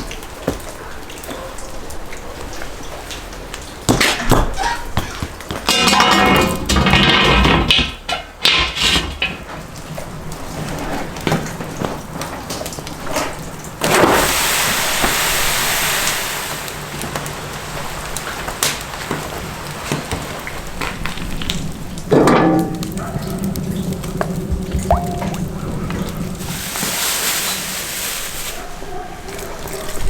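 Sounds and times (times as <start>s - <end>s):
food sizzling in hot fat: 13.9s - 17.0s, 26.4s - 28.6s.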